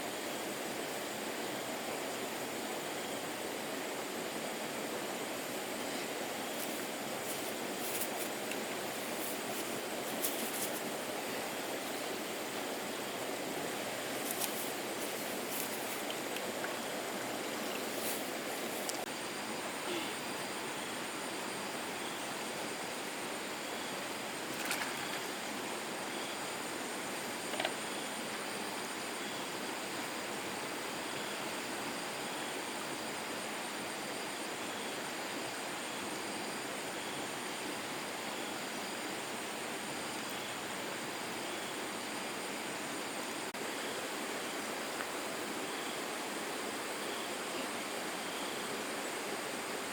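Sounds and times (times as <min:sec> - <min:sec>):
flowing water rushing: 0:00.0 - 0:33.9.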